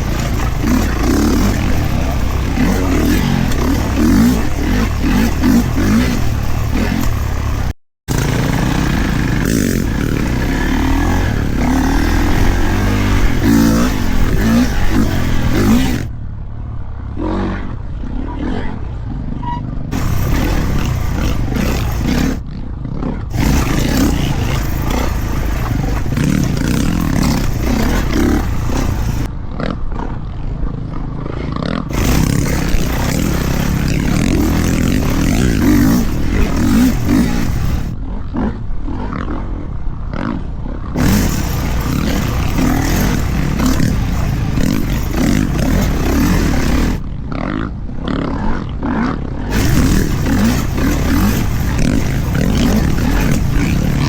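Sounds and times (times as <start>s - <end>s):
dirt bike engine revving: 0.0s - 16.1s, 19.9s - 22.4s, 23.3s - 29.3s, 31.9s - 38.0s, 41.0s - 47.0s, 49.5s - 54.0s.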